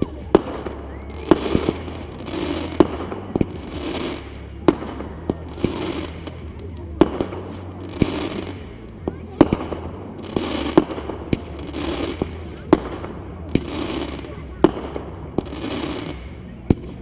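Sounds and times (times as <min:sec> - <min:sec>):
fireworks bangs: 0:00.0 - 0:17.0
fireworks crackling: 0:00.0 - 0:17.0.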